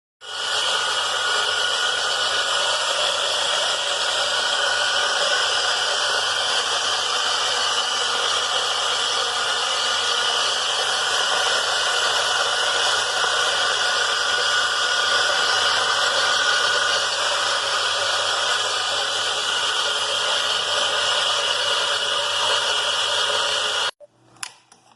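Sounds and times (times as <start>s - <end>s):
coffee grinder motor whirring: 0.2s - 24.0s.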